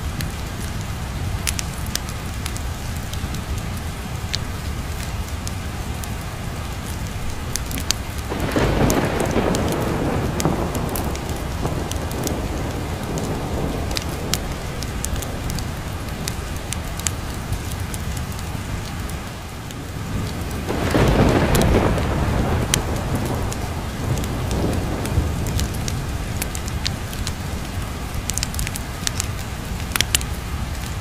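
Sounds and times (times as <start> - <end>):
steady rain: 0.0 - 31.0
wood fire crackling: 0.0 - 31.0
thunder rolling: 7.5 - 17.8, 19.9 - 28.8.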